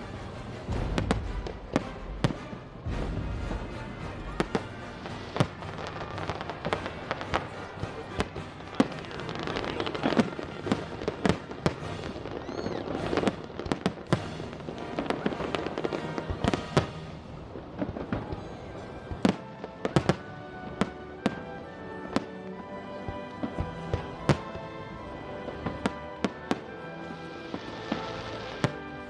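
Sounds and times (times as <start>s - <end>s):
fireworks bangs and crackles: 0.0s - 29.0s
music playing: 0.0s - 29.0s.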